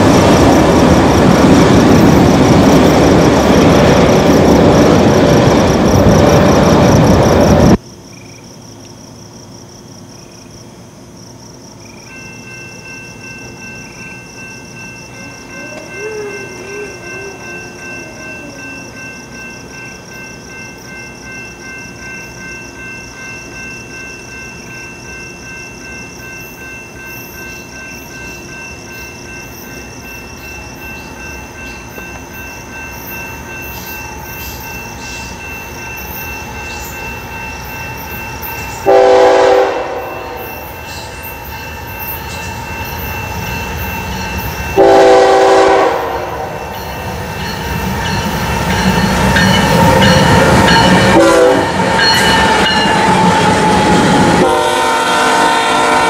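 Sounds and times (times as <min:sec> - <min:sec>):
distant train approaching: 0:00.0 - 0:56.0
train horn tones: 0:38.8 - 0:40.7, 0:44.8 - 0:46.7, 0:51.0 - 0:56.0.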